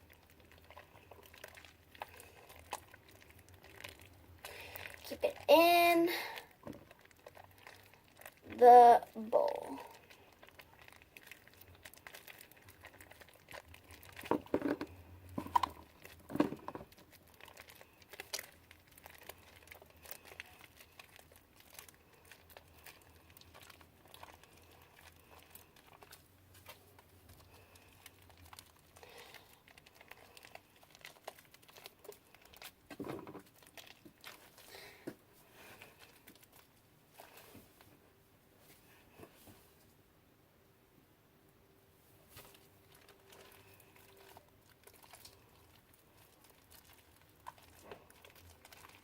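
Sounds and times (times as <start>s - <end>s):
faint slime crackling and tearing: 0.0s - 37.9s, 42.2s - 49.0s
hands squishing sticky slime: 0.0s - 37.9s, 42.2s - 49.0s.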